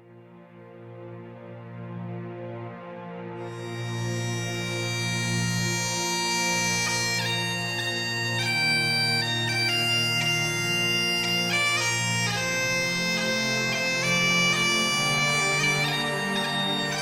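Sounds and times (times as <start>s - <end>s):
bagpipe music: 3.4s - 17.0s.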